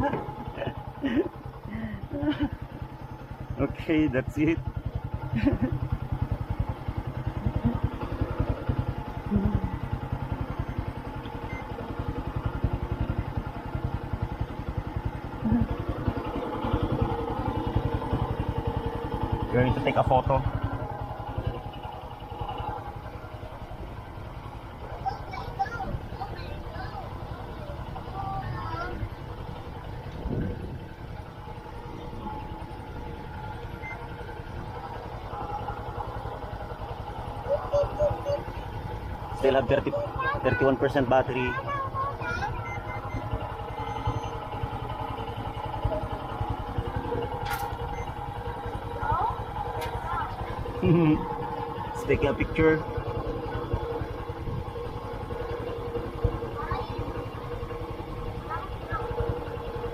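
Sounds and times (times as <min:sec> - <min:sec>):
motorcycle engine idling: 0:00.0 - 0:59.9
drone motors whining: 0:29.6 - 0:36.2, 0:37.3 - 0:44.8
wind rumbling against microphone: 0:30.1 - 0:30.8.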